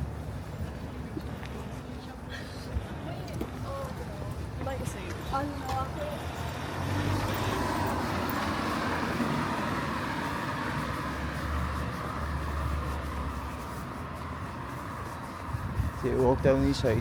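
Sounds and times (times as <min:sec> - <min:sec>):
traffic engine rumble: 0:00.0 - 0:17.0
tyres hissing on wet road: 0:05.7 - 0:17.0.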